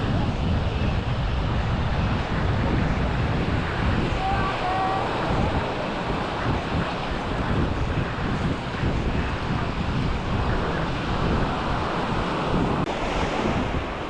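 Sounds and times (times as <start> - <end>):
wind buffeting microphone: 0.0 - 14.0
sea waves washing on shore: 3.4 - 14.0.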